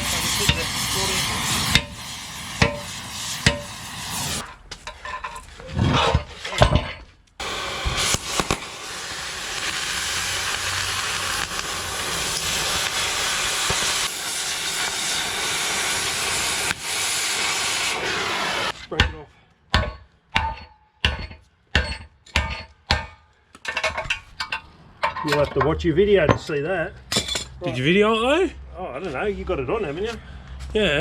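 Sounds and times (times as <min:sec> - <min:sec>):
gas cutting torch hissing: 0:00.0 - 0:04.4, 0:07.4 - 0:18.8
sharp metal knocks: 0:19.0 - 0:27.6.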